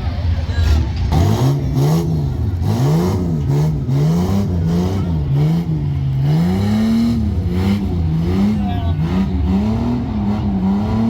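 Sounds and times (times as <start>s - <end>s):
truck engine revving: 0.1s - 11.0s.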